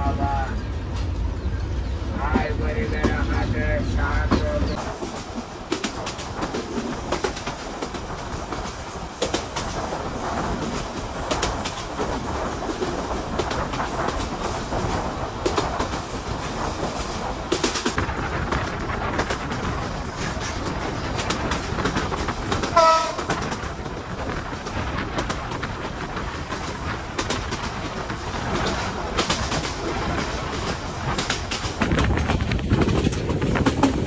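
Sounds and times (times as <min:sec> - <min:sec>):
train wheels clacking over rail joints: 0:04.3 - 0:34.0
train horn blast: 0:22.7 - 0:23.3.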